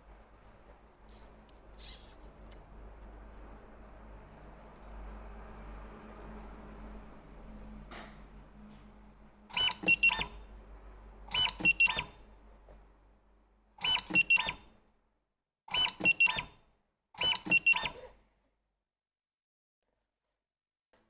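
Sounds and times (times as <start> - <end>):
electronic beeps: 9.6 - 10.4, 11.3 - 12.1, 13.8 - 14.6, 17.2 - 18.0.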